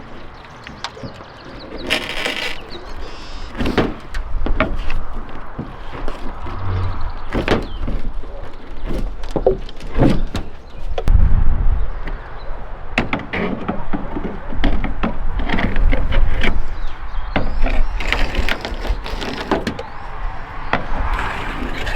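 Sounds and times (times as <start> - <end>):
heavy low thud: 6.4 - 7.4.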